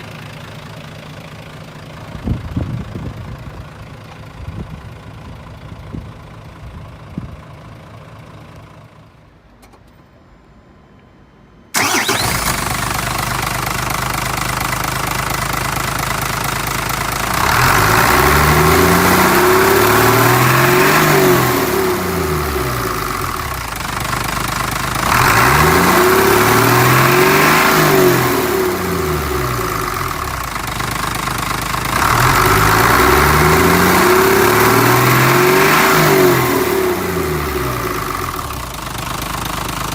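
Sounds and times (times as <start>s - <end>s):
diesel truck engine revving: 11.8s - 30.6s, 31.6s - 39.3s.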